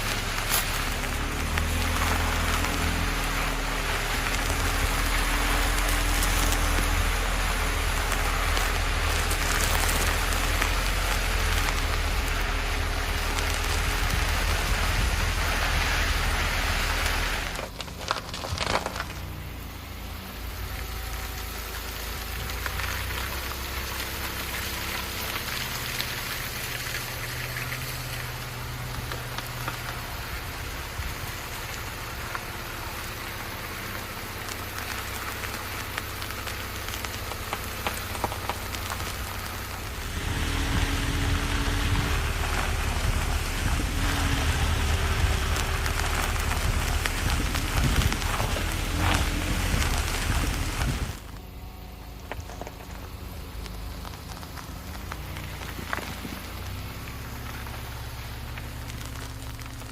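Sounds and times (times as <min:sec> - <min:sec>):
car engine running low: 0:00.0 - 0:59.9
tyres crackling over gravel: 0:00.0 - 0:59.9.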